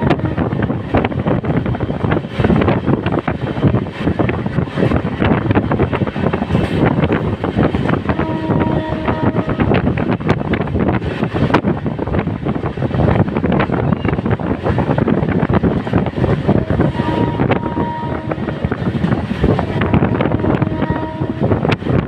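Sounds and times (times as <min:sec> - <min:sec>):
train wheels rumbling on track: 0:00.0 - 0:22.0
wind buffeting microphone: 0:00.0 - 0:22.0.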